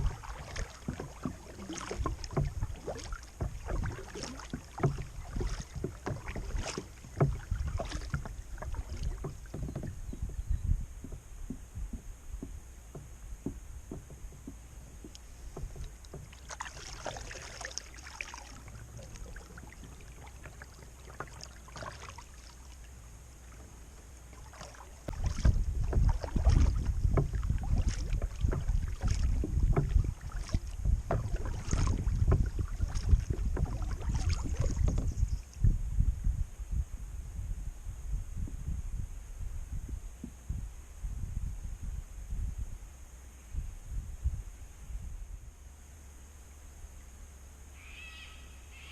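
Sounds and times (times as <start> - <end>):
wind rumble on microphone: 0.0 - 17.7, 23.0 - 47.1
paddle splashing in water: 0.0 - 35.7.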